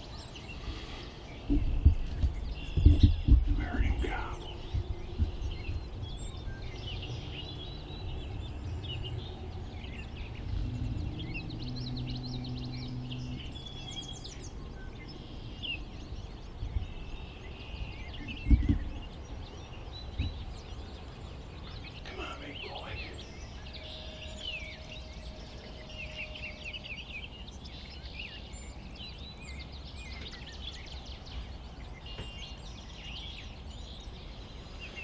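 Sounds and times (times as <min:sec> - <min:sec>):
low rumbling background: 0:00.0 - 0:26.0
low steady hum: 0:00.0 - 0:31.8
small birds chirping: 0:00.0 - 0:35.0.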